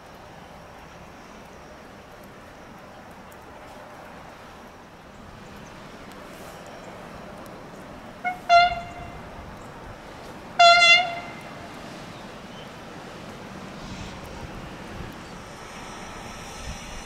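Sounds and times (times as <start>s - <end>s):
locomotive horn blasts: 8.2s - 9.3s, 10.6s - 11.7s.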